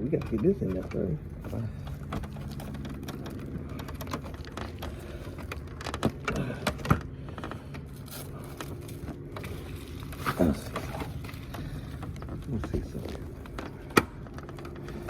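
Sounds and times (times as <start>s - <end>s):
plastic parts clicking and tapping: 0.0s - 7.9s
low hum: 0.0s - 15.0s.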